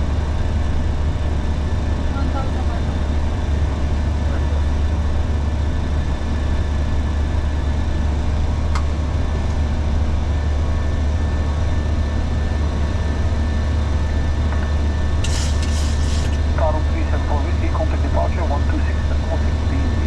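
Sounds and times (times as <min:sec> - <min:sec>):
airflow and engine drone: 0:00.0 - 0:20.0.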